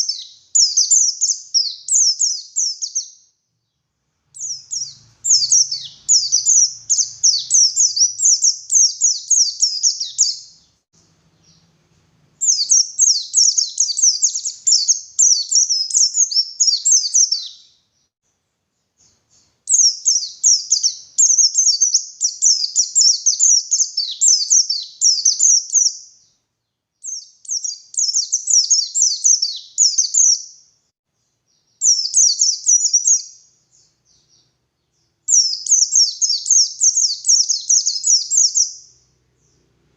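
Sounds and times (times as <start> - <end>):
bird twittering song: 0.0 - 11.8, 12.4 - 18.1, 18.7 - 39.8.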